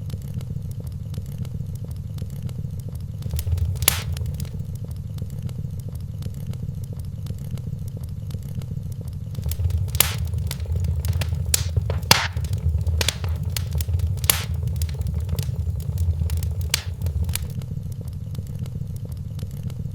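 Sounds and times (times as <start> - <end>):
wood fire crackling: 3.2 - 4.6, 9.4 - 17.6.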